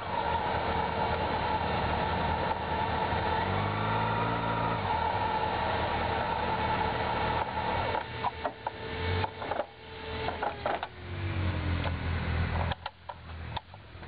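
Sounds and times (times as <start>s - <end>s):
motorcycle engine idling: 5.3s - 14.0s.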